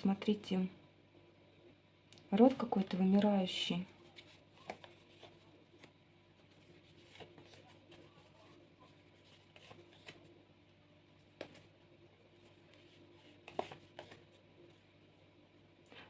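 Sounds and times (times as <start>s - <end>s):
cards clicking and rustling: 4.1s - 8.1s, 12.8s - 14.3s.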